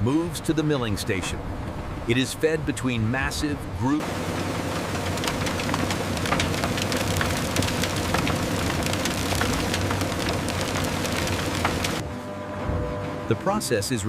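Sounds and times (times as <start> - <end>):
mill rollers humming: 4.0 - 12.1
cane crackling as crushed: 4.1 - 12.0.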